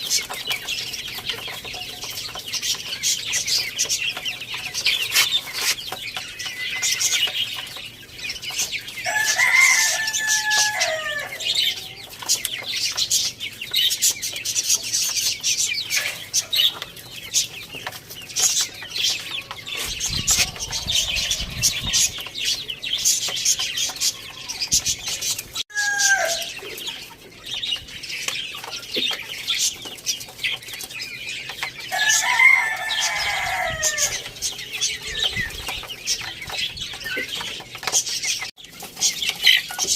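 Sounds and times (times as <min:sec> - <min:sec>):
chickens clucking: 0:00.0 - 0:39.9
small birds chirping: 0:00.0 - 0:39.9
rooster crowing: 0:09.0 - 0:11.7, 0:20.2 - 0:22.2, 0:25.7 - 0:26.6, 0:31.9 - 0:34.2.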